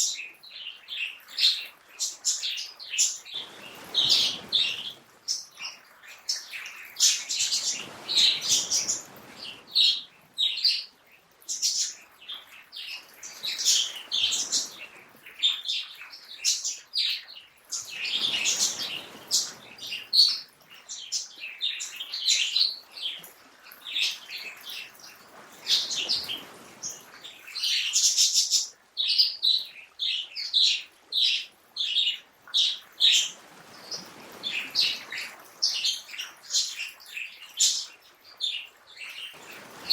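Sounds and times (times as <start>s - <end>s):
songbirds chirping: 0.0s - 39.9s
soft wash of noise: 3.3s - 5.5s, 6.3s - 12.0s, 17.7s - 22.1s.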